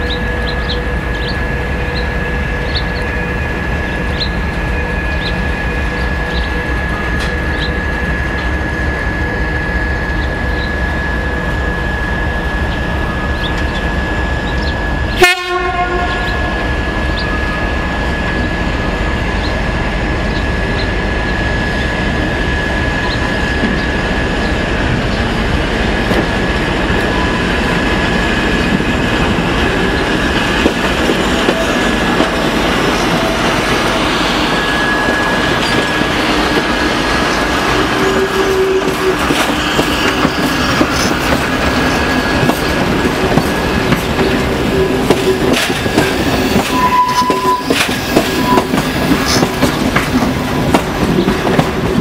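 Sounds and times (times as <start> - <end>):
train running past: 0.0 - 52.0
train horn blast: 15.1 - 16.8, 30.5 - 41.2, 42.1 - 49.5
steady whine: 16.3 - 52.0.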